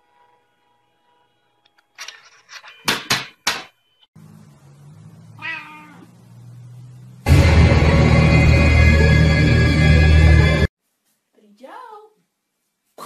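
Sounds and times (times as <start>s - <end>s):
low steady hum: 4.2s - 10.4s
cat meowing: 5.4s - 6.1s.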